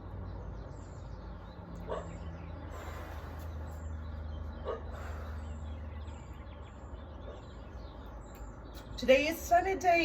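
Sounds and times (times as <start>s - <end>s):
dog barking: 1.9s - 2.2s, 4.6s - 4.9s.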